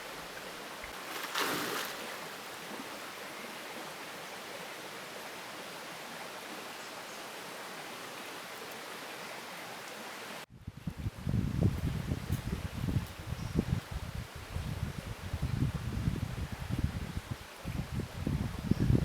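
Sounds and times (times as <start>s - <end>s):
water swish: 0.0s - 3.9s
flowing water rushing: 0.0s - 10.5s.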